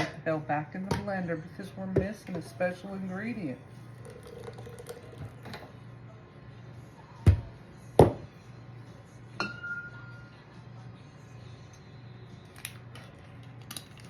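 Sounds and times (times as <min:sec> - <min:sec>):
glass knocking on counter: 0:08.0 - 0:08.2.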